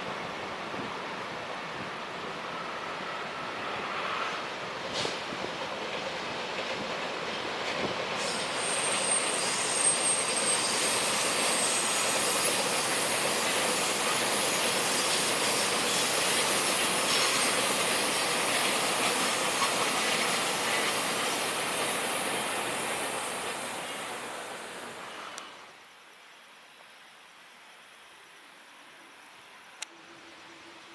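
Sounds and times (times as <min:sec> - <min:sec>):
train passing on rails: 0:00.0 - 0:25.8
high wheel squeal: 0:08.1 - 0:25.3.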